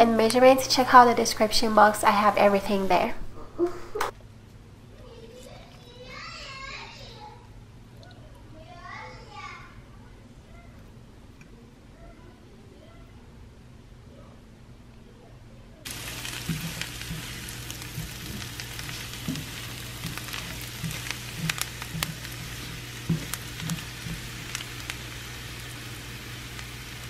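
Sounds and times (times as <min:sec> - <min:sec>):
potatoes sizzling in a skillet: 0:15.9 - 0:27.0.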